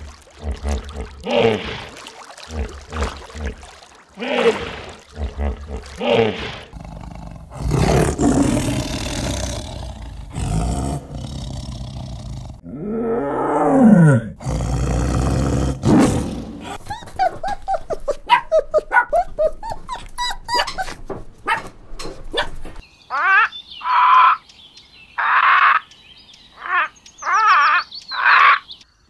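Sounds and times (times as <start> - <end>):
low grunting calls: 0.0 - 16.9.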